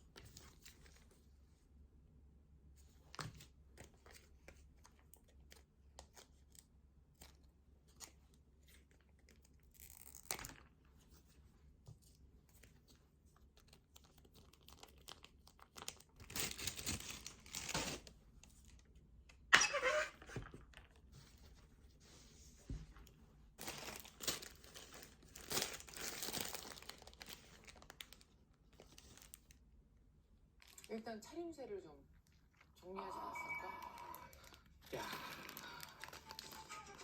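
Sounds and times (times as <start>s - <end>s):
rustling and crinkling: 2.7s - 19.1s, 20.2s - 29.6s.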